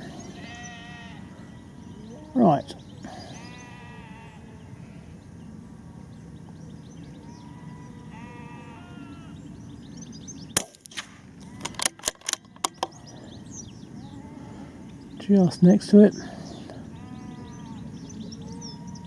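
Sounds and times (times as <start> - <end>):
sheep bleating: 0.0 - 5.2, 7.2 - 9.4, 16.9 - 19.0
rifle shot: 10.6 - 12.4
rifle bolt clicks: 10.6 - 12.9.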